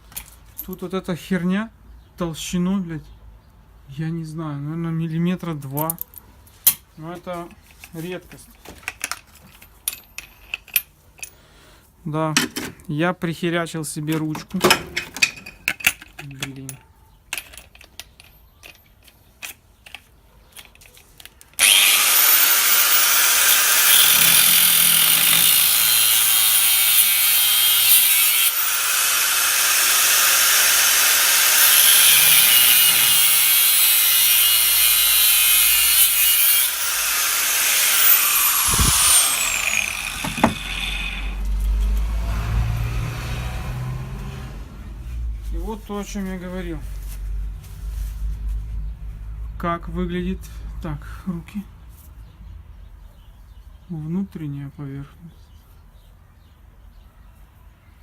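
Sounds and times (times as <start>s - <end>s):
angle grinder cutting steel: 21.6s - 44.4s.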